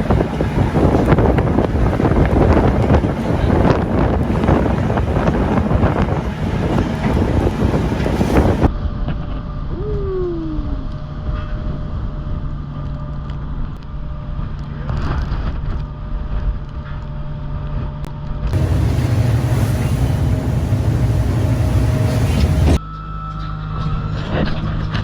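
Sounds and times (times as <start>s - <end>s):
boat engine humming: 0.0s - 8.7s, 18.6s - 22.8s
wind buffeting microphone: 0.0s - 8.7s, 18.6s - 22.8s.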